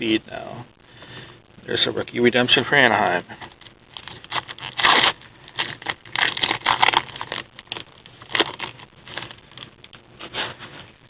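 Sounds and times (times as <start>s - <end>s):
cards rustling and scraping: 3.4s - 11.0s.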